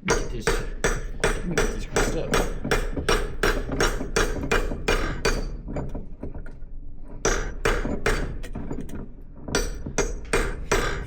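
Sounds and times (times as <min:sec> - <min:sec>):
hammer striking steel: 0:00.0 - 0:05.5, 0:07.3 - 0:08.4, 0:09.6 - 0:11.0.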